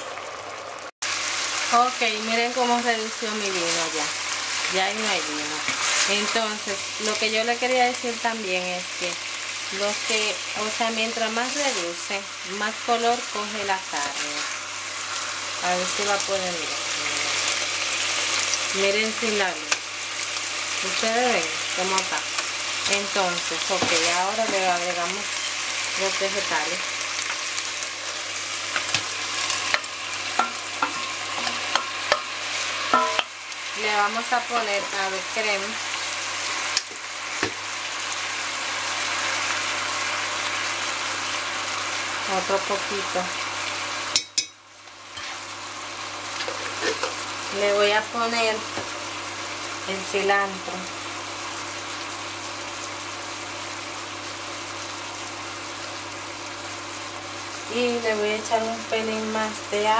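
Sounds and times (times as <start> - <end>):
beef sizzling in a metal pot: 0.0 - 59.9
clinks against a pot: 30.4 - 32.3, 32.9 - 33.3, 44.1 - 44.6.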